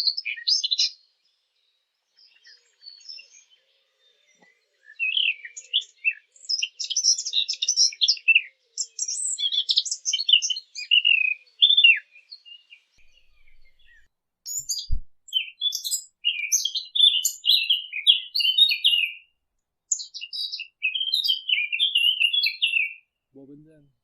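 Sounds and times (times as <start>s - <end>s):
warbler singing: 0.0s - 19.3s, 19.9s - 23.8s
low thump: 14.7s - 15.2s.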